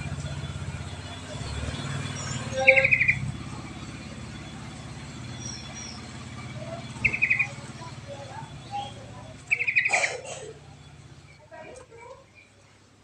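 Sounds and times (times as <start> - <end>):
faint bird chirps: 0.0 - 11.5
low engine-like hum: 0.0 - 13.0
songbird chattering trill: 2.0 - 11.4.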